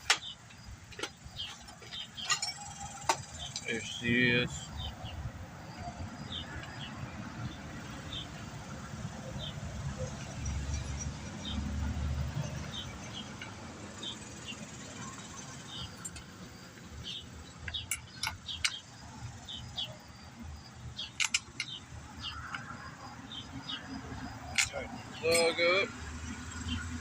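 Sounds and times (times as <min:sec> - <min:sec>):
tool clicks and metal taps: 0:17.6 - 0:18.8, 0:21.0 - 0:21.8, 0:24.5 - 0:25.6.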